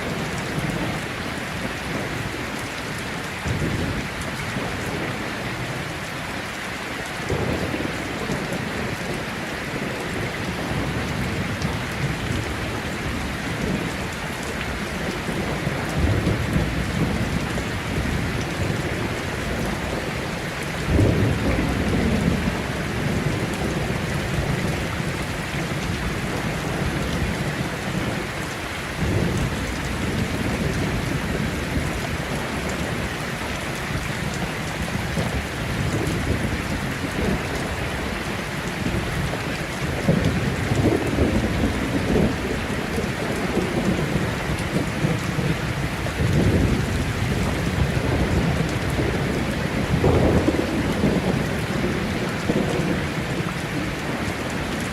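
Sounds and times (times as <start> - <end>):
heavy rain: 0.0 - 54.9
thunder rolling: 46.2 - 53.4.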